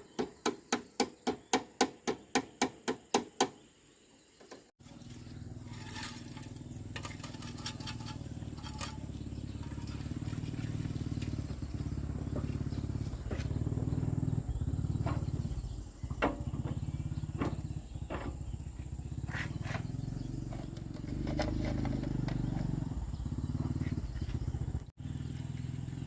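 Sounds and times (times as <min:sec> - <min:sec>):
old tractor engine running: 0:04.8 - 0:26.0
engine clattering knocks: 0:05.8 - 0:24.7.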